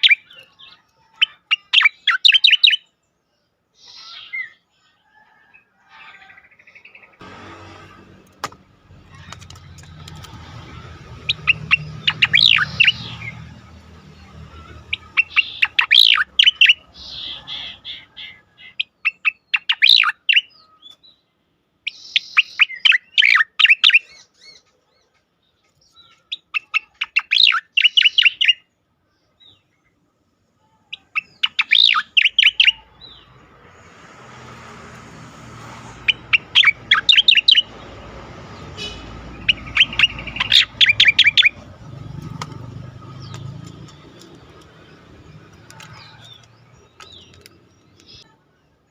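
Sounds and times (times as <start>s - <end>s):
bird singing sharp repeated notes: 0.0s - 3.0s, 11.1s - 24.6s, 25.8s - 28.8s, 30.9s - 33.4s, 36.0s - 48.4s.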